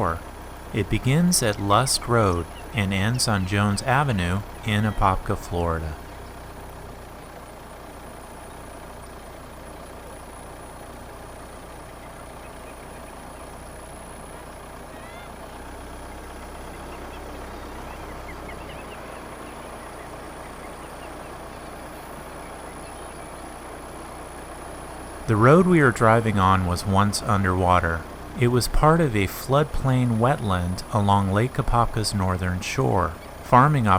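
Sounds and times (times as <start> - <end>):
car driving rumble: 0.0 - 33.9
faint rising chirps: 11.6 - 27.4.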